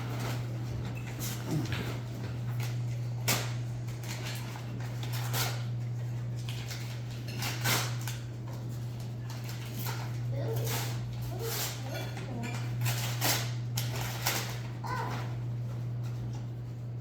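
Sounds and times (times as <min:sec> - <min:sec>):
wrapping paper rustling and tearing: 0:02.6 - 0:05.8, 0:06.4 - 0:15.4.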